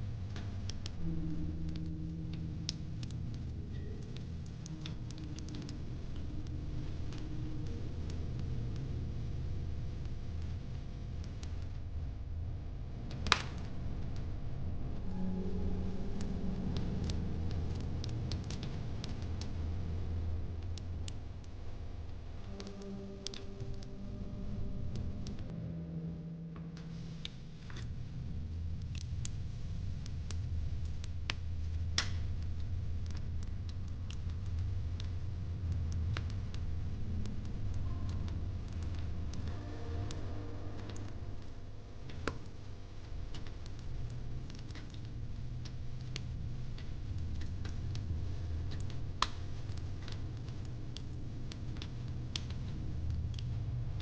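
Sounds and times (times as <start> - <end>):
low rumble: 0.0 - 54.0
fire crackling and popping: 13.0 - 14.3, 16.2 - 23.8, 27.0 - 39.5, 40.8 - 54.0
fire crackling in fire pit: 40.8 - 54.0.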